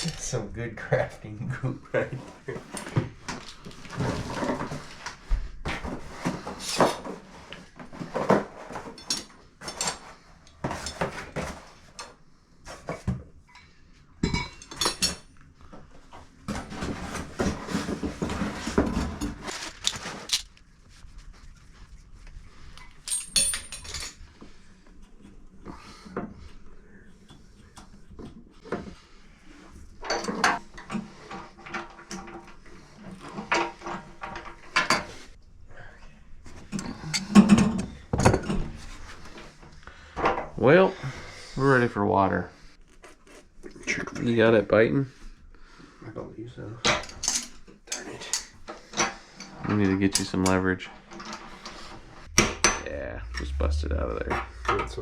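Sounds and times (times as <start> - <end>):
metal and plastic parts clinking: 19.4 - 20.6, 22.8 - 24.2.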